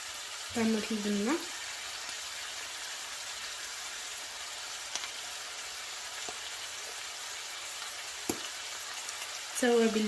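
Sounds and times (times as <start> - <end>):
vegetables sizzling in hot oil: 0.0 - 10.0.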